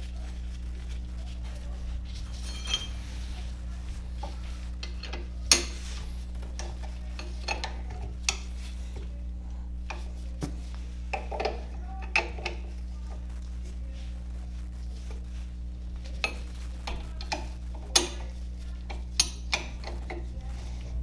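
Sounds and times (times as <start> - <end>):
steady low hum: 0.0 - 21.0
metal tools clinking and scraping: 2.2 - 8.8, 16.1 - 20.3.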